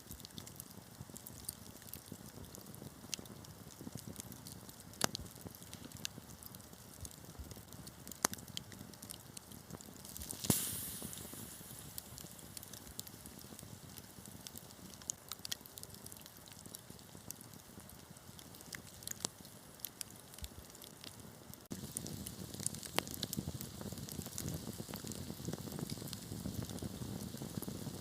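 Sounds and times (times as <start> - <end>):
wood fire crackling: 0.0 - 28.0
short hiss: 10.1 - 12.2.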